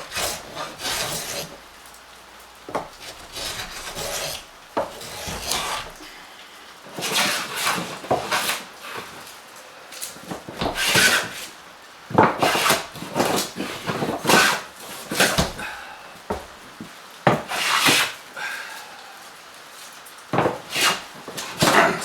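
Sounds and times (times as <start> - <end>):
edge tool scraping wood: 0.0 - 1.6, 2.7 - 6.0, 6.9 - 9.3, 10.2 - 11.5, 12.1 - 16.5, 17.3 - 18.2, 20.4 - 22.0.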